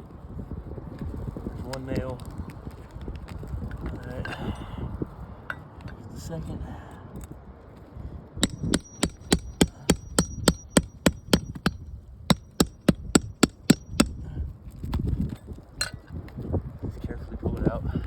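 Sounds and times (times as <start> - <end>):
hammer tapping metal nail puller: 8.4 - 14.2.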